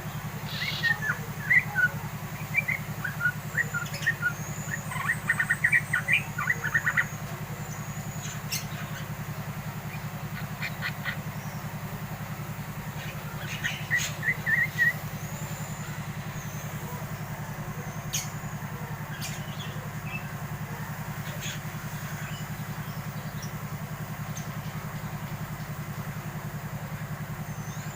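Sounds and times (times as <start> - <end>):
low machine hum: 0.0 - 27.9
bird chattering chirps: 0.4 - 9.2, 9.9 - 11.8, 12.9 - 20.3.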